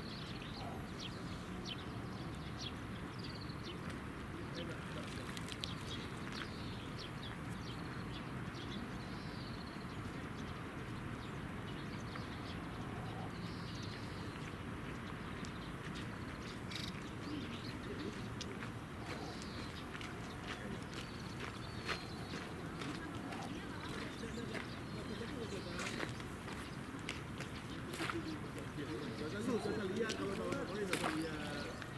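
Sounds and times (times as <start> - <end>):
birds chirping and whistling: 19.1 - 22.5.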